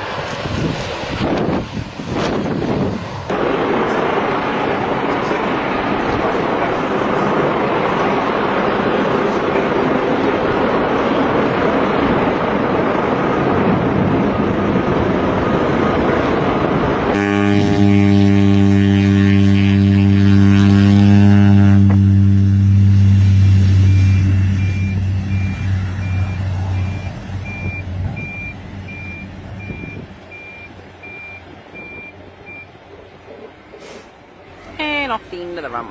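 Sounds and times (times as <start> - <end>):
droning engine hum: 0.0 - 35.9
rushing engine noise: 0.0 - 35.9
high repeated beeping: 23.9 - 32.7.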